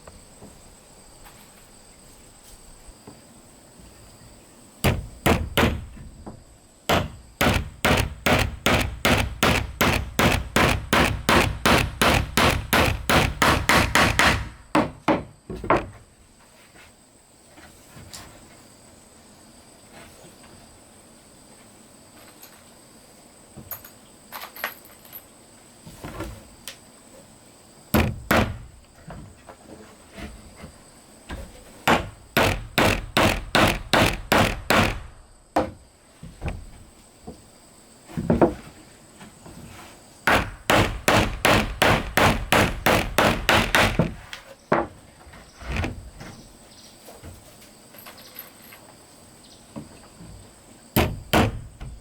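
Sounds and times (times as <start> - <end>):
hammer striking nails into wood: 4.8 - 6.0, 6.9 - 15.3, 27.9 - 28.7, 31.8 - 35.8, 40.3 - 44.3, 51.0 - 51.8.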